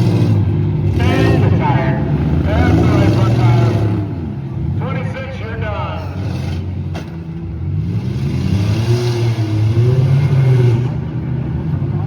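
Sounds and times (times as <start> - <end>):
car engine revving hard: 0.0 - 4.4, 7.6 - 11.2.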